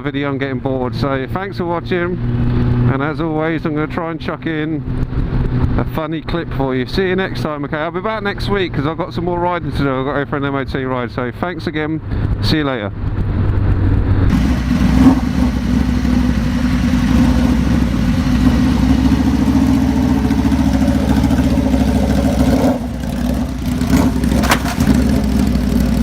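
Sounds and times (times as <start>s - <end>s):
vehicle engine humming: 13.1s - 26.0s.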